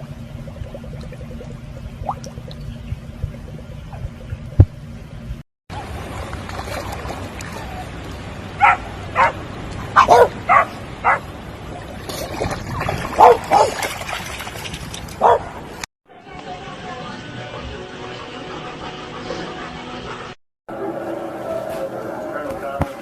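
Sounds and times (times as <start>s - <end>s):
dog barking: 8.6s - 11.2s, 13.2s - 13.8s, 15.2s - 15.5s.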